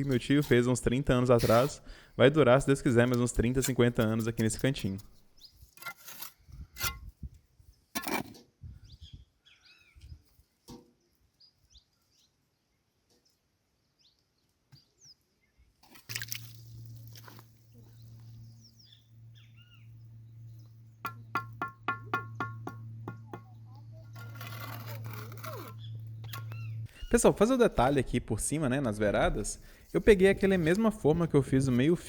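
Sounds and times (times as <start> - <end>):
small birds chirping: 8.7 - 15.6, 17.7 - 21.0, 25.5 - 27.2
sharp knocks: 21.0 - 23.5.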